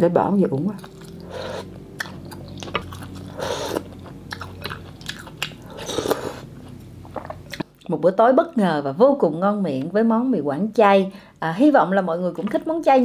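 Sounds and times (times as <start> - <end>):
chewing noodles: 0.8 - 7.6.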